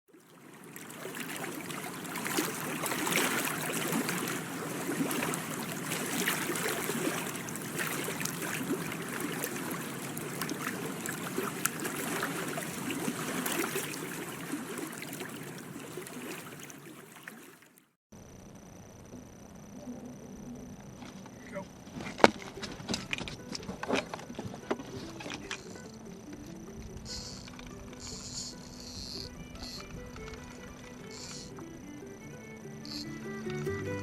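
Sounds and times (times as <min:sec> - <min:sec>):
water lapping and splashing: 0:00.1 - 0:18.0.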